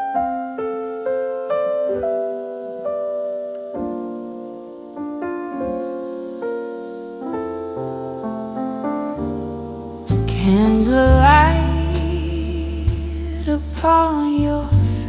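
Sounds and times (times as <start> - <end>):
slow soul-blues piano: 0.0 - 15.0
bass line: 9.4 - 15.0.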